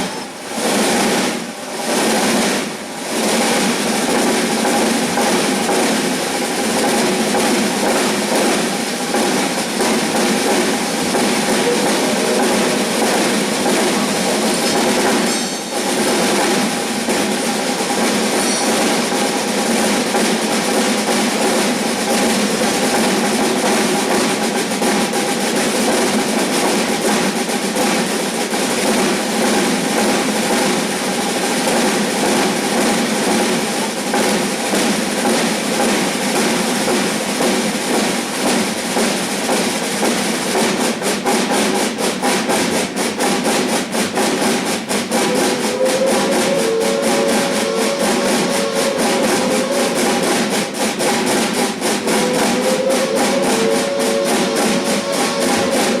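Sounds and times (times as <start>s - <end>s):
drum ensemble drum roll: 0.0s - 56.0s
steady pitched tone: 45.1s - 56.0s.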